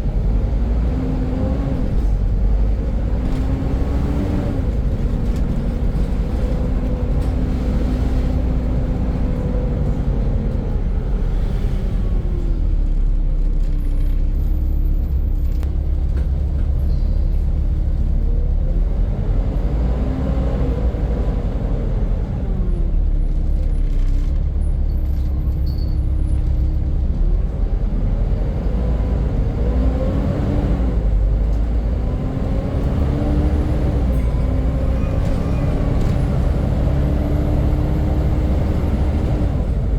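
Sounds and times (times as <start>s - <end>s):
diesel bus engine rumbling: 0.0s - 39.9s.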